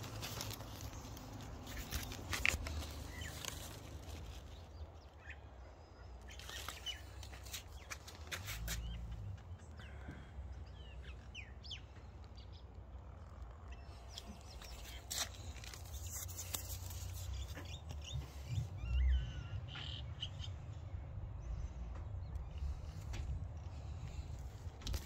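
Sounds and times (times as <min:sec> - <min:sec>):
birds chirping and whistling: 0:17.2 - 0:20.9.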